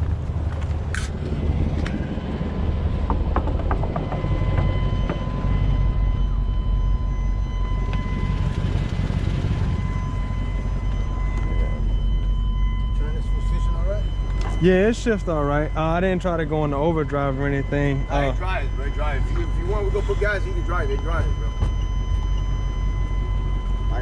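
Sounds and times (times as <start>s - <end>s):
truck engine rumbling: 0.0s - 24.0s.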